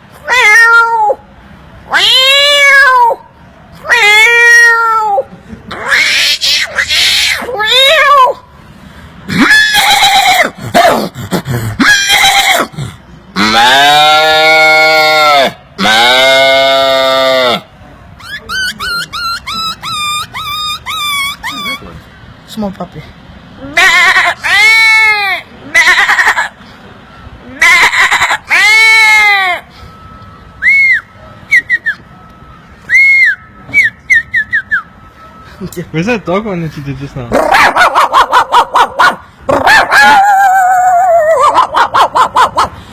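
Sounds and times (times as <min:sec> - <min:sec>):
man imitating livestock calls: 0:13.4 - 0:17.7
man whistling bird-like calls: 0:18.2 - 0:21.9, 0:30.6 - 0:32.1, 0:32.8 - 0:35.4.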